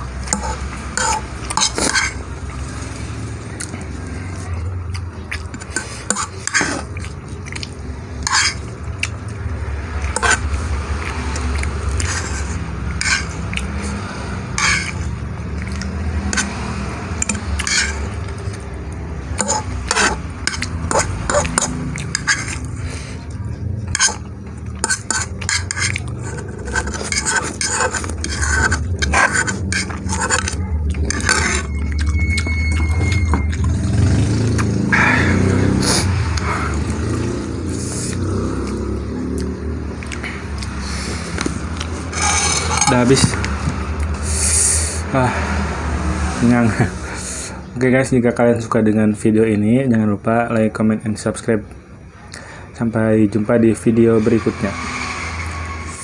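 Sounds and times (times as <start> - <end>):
metal fork scraping a bowl: 0.2 - 2.2, 5.5 - 7.0, 8.2 - 8.7, 10.0 - 10.6, 11.6 - 16.6, 17.2 - 18.6, 19.4 - 22.8, 23.8 - 33.6, 41.8 - 43.5, 53.7 - 56.0.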